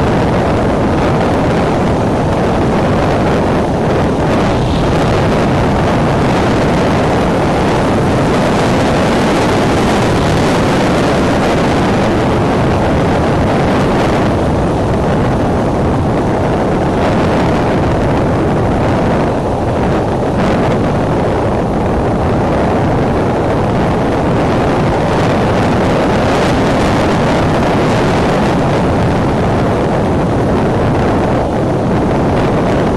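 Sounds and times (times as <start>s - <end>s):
strong wind on microphone: 0.0s - 32.9s.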